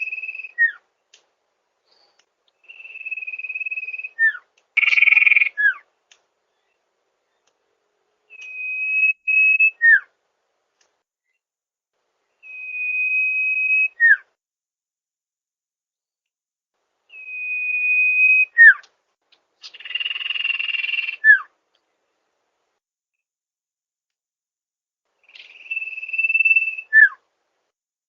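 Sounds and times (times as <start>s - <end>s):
bird whistling call: 0.0s - 0.8s, 2.6s - 5.8s, 8.3s - 10.1s, 12.4s - 14.3s, 17.1s - 18.9s, 19.6s - 21.5s, 25.2s - 27.2s.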